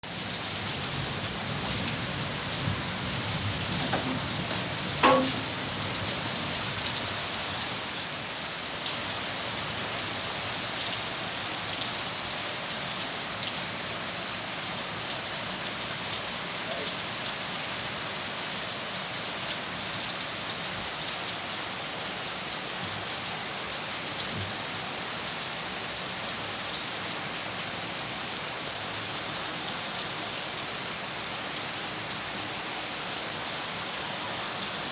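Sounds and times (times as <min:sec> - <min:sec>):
heavy rain falling: 0:00.0 - 0:34.9
sharp knock with short ring: 0:05.0 - 0:05.6.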